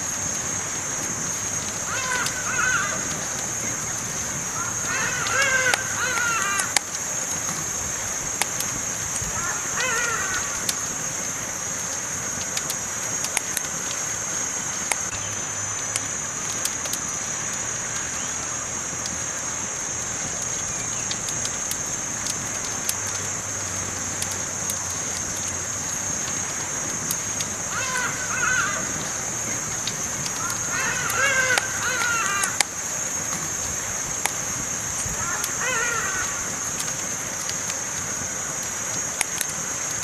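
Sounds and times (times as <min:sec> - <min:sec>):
campfire crackling: 0:00.0 - 0:40.0
bird call: 0:01.9 - 0:03.8, 0:04.5 - 0:06.8, 0:09.4 - 0:10.7, 0:27.7 - 0:29.2, 0:30.3 - 0:32.6, 0:35.2 - 0:36.6.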